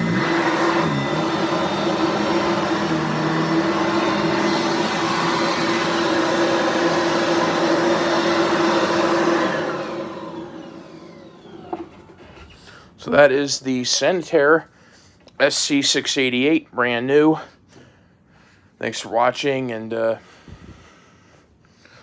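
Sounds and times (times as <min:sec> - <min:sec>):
vacuum motor winding down: 0:00.0 - 0:12.4
vacuum cleaner running: 0:00.0 - 0:12.5.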